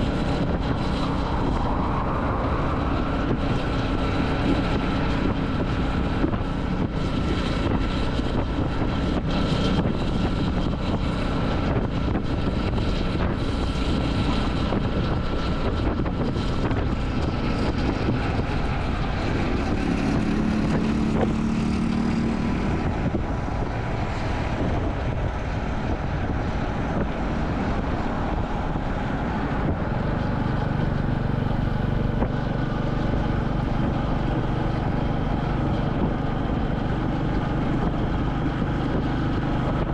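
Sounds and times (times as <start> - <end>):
motorcycle engine running: 0.0 - 39.9
rushing wind: 0.0 - 39.9.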